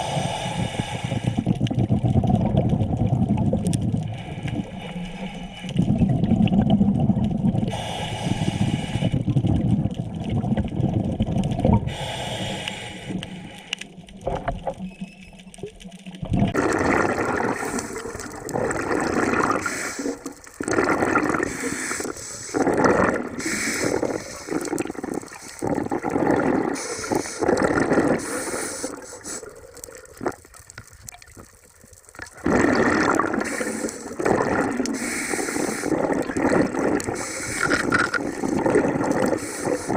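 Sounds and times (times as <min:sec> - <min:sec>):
diver breathing through regulator: 0:00.0 - 0:01.6, 0:04.1 - 0:06.0, 0:07.7 - 0:09.4, 0:11.8 - 0:14.0, 0:17.2 - 0:29.6, 0:32.4 - 0:39.9
air bubbling out underwater: 0:01.2 - 0:04.8, 0:05.8 - 0:07.9, 0:08.5 - 0:12.0, 0:16.0 - 0:30.6, 0:32.2 - 0:39.9.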